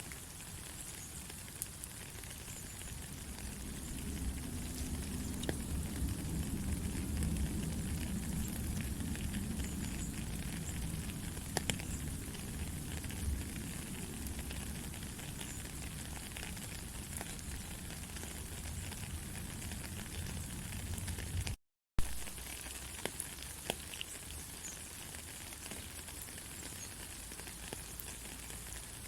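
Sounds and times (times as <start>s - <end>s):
steady rain: 0.0s - 29.0s
rain drop ticks: 0.1s - 29.0s
low rumble: 3.0s - 15.2s.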